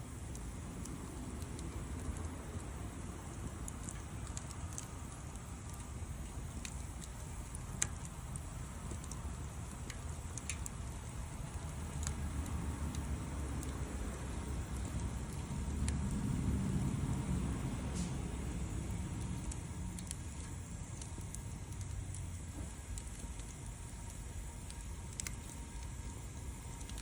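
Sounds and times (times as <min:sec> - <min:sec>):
wood fire crackling: 0:00.0 - 0:27.0
low rumble: 0:10.7 - 0:27.0.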